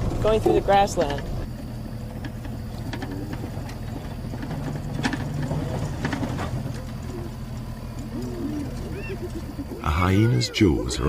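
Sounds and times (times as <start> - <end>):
engine running low hum: 0.0 - 11.0.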